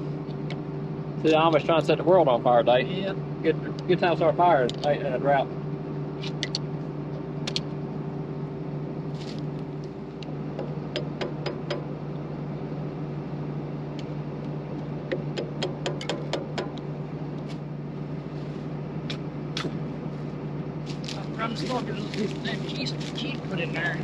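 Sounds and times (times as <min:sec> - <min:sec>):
sharp clicks and metal knocks: 0:10.2 - 0:11.9, 0:15.1 - 0:16.9.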